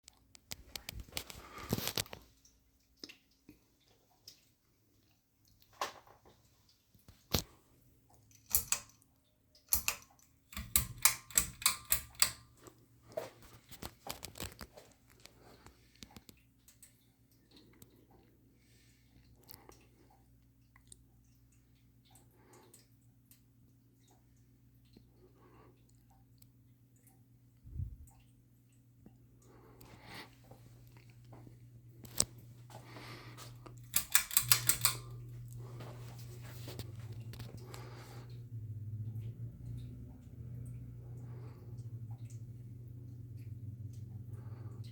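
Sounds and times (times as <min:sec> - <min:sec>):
faint steady hum: 0:00.1 - 0:44.9
irregular clicks and knocks: 0:08.3 - 0:09.0, 0:09.6 - 0:12.8, 0:33.4 - 0:35.6
ceiling fan motor humming: 0:26.9 - 0:44.9.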